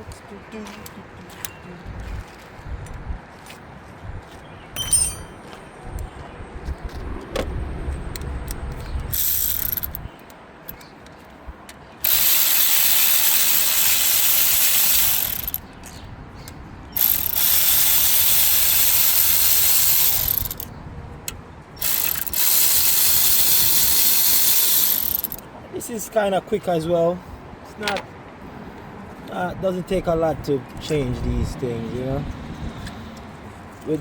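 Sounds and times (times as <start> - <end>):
ratchet wrench clicking: 9.1 - 10.1, 12.0 - 15.6, 17.0 - 20.7, 21.8 - 25.4.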